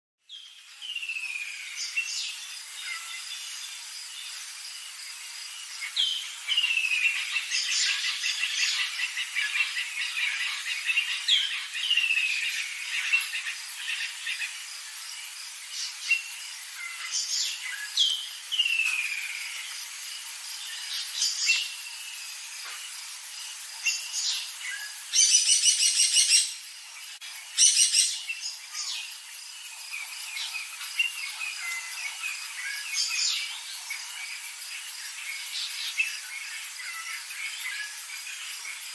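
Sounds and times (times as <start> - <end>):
birds calling and chirping: 5.2 - 38.9
loud rapid bird trills: 23.8 - 29.2.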